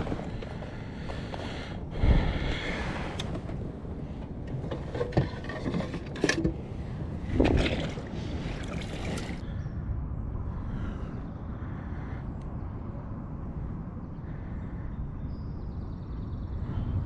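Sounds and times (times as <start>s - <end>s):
steady low rumble: 0.0s - 17.0s
water splashing around kayak: 7.3s - 9.4s.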